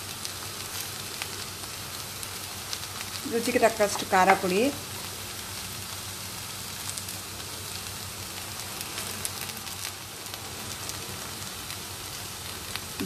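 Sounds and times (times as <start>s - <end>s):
okra sizzling in oil: 0.0s - 13.0s.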